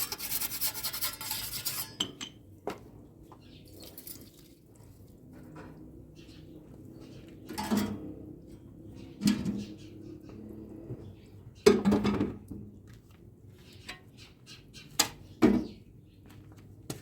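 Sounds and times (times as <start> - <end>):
pots and utensils clattering: 7.5 - 8.1.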